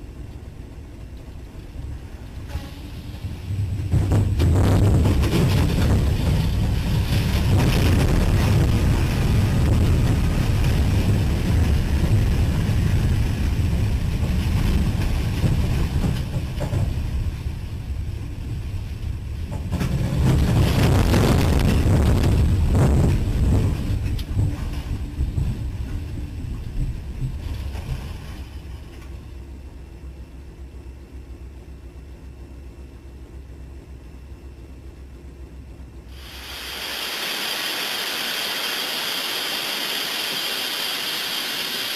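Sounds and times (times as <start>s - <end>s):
wind noise on microphone: 2.5s - 28.5s.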